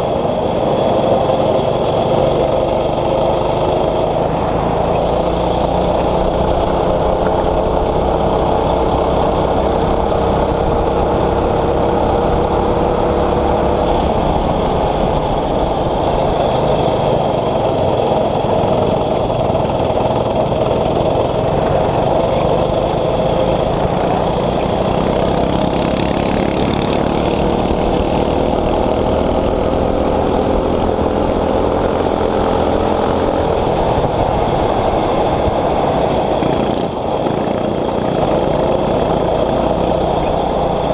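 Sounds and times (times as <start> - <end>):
kart engine running under load: 0.0 - 40.9.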